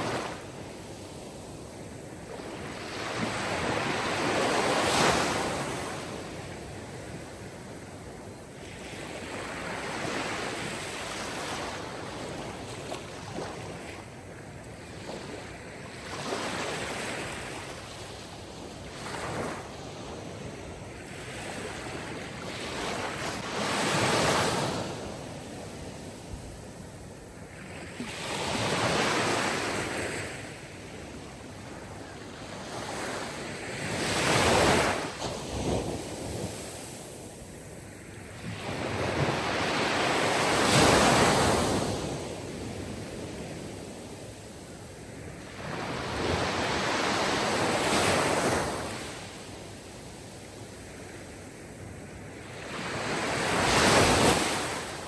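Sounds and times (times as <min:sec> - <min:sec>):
sea waves breaking on shore: 0:14.8 - 0:50.1, 0:52.0 - 0:55.0.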